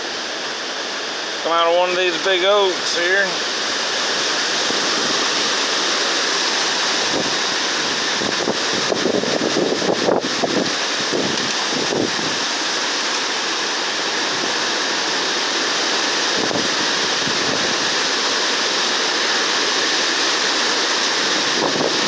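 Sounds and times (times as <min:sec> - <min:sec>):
strong wind through trees: 0:00.0 - 0:22.0
wind buffeting microphone: 0:04.5 - 0:12.5, 0:16.3 - 0:18.1, 0:21.2 - 0:22.0.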